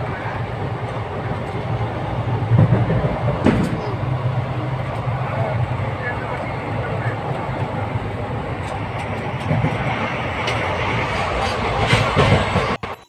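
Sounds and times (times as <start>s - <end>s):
train wheels rumbling on rails: 0.0s - 13.0s
sharp wheel clacks: 8.6s - 13.0s.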